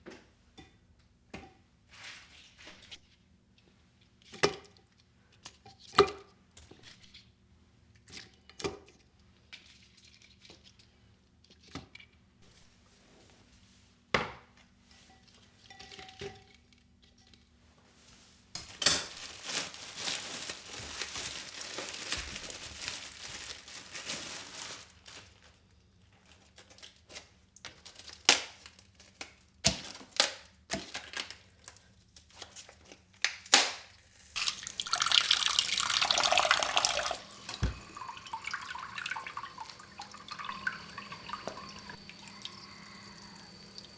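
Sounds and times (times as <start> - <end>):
dishes and utensils clinking: 18.6 - 19.4, 34.4 - 43.9
tap running into a sink: 34.4 - 43.9.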